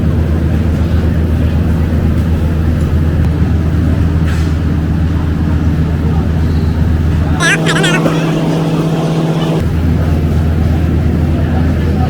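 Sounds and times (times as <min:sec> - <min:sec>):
vehicle engine droning: 0:07.0 - 0:09.6.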